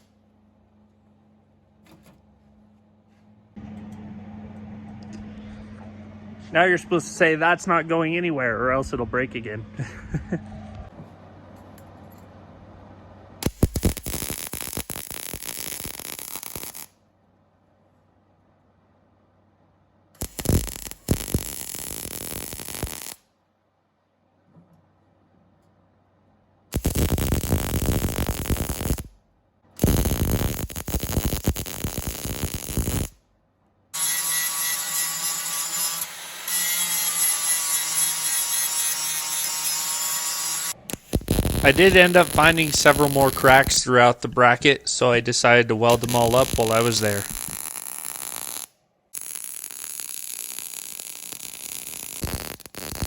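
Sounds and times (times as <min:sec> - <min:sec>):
low steady hum: 0:00.0 - 0:14.0
electric welder arc crackling: 0:13.4 - 0:17.0, 0:20.2 - 0:23.3, 0:26.7 - 0:29.2, 0:29.8 - 0:33.2, 0:34.0 - 0:53.0.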